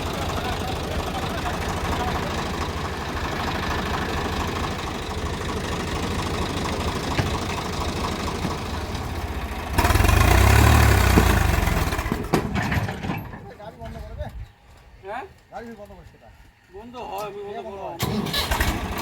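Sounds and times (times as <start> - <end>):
diesel tractor engine idling: 0.0 - 13.6, 17.8 - 19.0.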